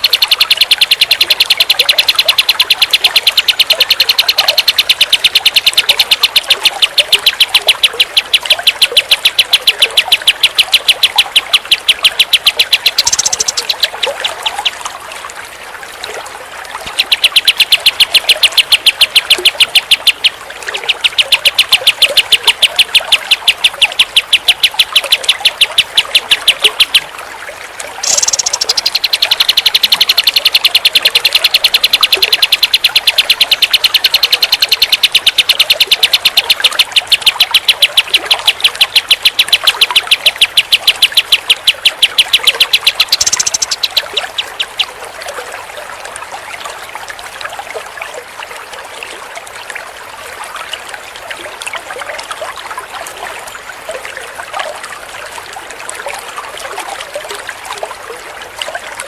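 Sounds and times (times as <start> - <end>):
songbird singing high notes: 0.0 - 14.8, 16.8 - 27.1, 28.0 - 45.0.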